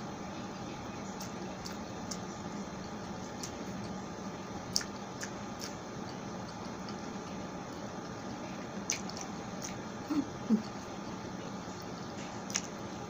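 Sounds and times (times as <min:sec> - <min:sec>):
close chewing: 0:01.2 - 0:04.0, 0:04.6 - 0:12.8
wet mouth clicks and smacks: 0:08.9 - 0:09.8.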